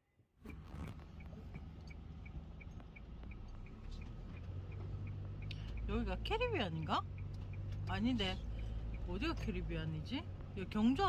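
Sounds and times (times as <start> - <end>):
car rumble inside cabin: 0.4 - 11.0
quick regular ticking: 1.1 - 9.4.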